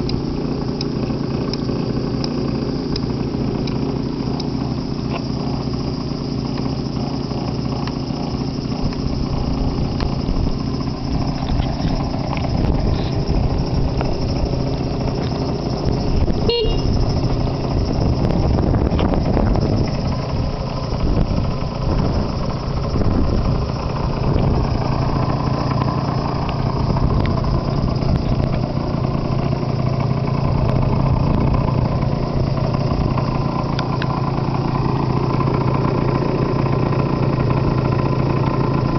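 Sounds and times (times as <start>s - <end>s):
scooter engine idling: 0.0s - 38.9s
scooter horn beep: 16.3s - 17.3s.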